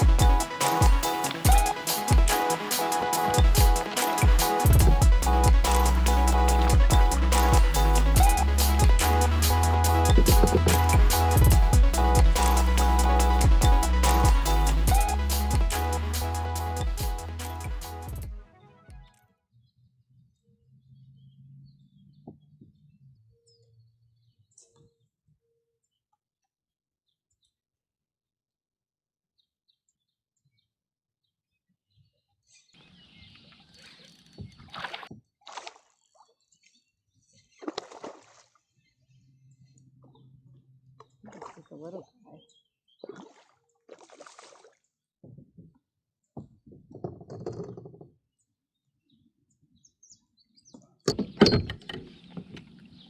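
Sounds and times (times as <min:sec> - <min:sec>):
water splashing around boat: 0:33.7 - 0:36.2, 0:37.6 - 0:38.5, 0:43.0 - 0:44.8.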